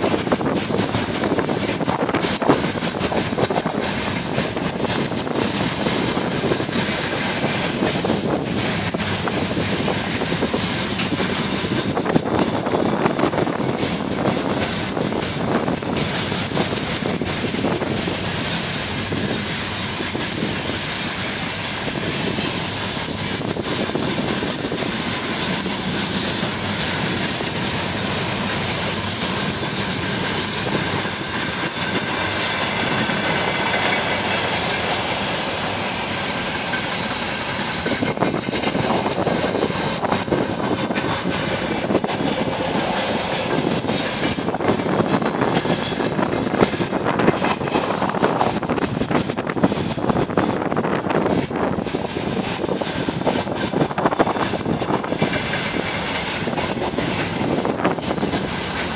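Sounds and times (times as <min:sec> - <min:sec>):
clacking over rail joints: 0:00.0 - 0:58.9
wheels rumbling on rail: 0:00.0 - 0:58.9
high wheel squeal: 0:18.6 - 0:26.8, 0:27.4 - 0:33.0.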